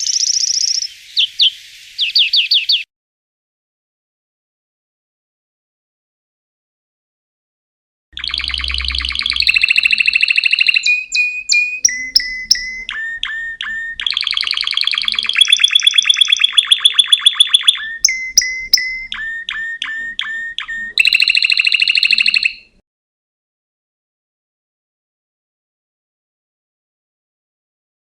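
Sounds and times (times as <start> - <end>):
songbird singing: 0.0 - 2.9, 8.2 - 22.8.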